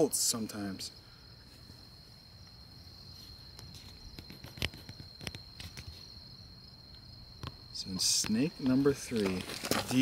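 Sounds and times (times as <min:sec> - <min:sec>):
high-pitched insect trill: 0:00.0 - 0:10.0
clicks and rustles near microphone: 0:03.5 - 0:06.1, 0:08.2 - 0:10.0.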